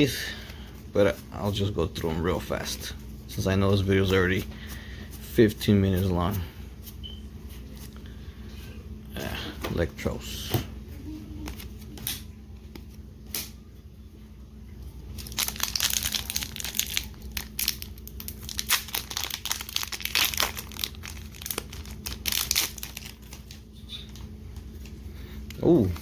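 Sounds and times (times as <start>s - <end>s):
card pack wrapper crinkling: 15.2s - 24.9s.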